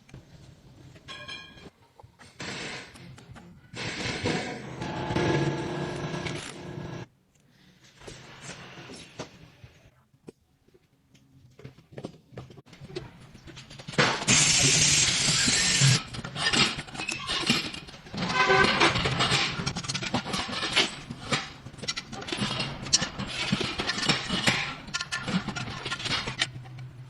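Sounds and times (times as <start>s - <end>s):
machine humming: 3.8s - 7.1s
loud hiss: 14.3s - 16.0s
irregular clicks and knocks: 16.0s - 27.0s.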